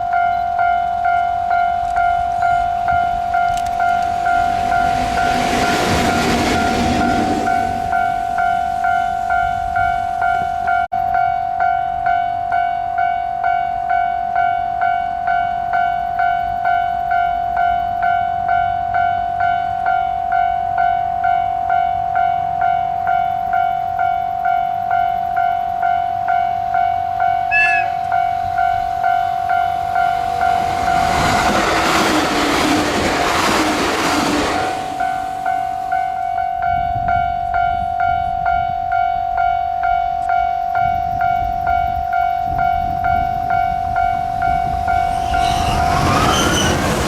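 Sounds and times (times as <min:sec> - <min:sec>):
level crossing alarm bell: 0:00.0 - 0:31.2
train rushing and wheel noise: 0:00.0 - 0:47.0
train whistle blast: 0:27.4 - 0:29.4, 0:44.6 - 0:46.9.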